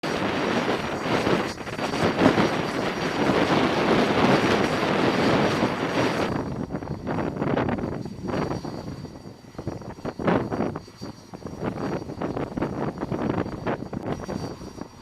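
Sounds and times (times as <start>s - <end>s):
faint high whine: 0.0s - 15.0s
jet engine rushing: 0.0s - 15.0s.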